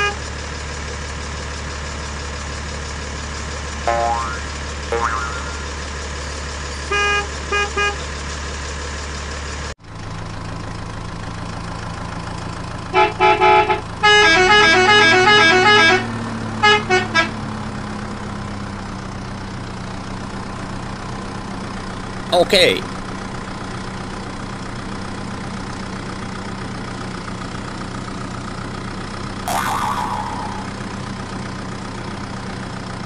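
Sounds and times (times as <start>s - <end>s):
truck engine running: 0.1s - 15.3s
truck horn honking: 3.9s - 5.8s, 6.8s - 8.0s, 12.9s - 17.4s.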